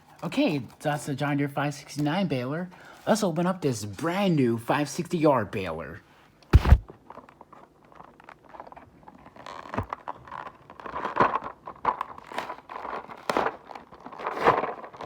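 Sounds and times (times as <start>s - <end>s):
cardboard box scraping: 6.6s - 6.8s
plastic packaging crinkling: 9.5s - 15.0s.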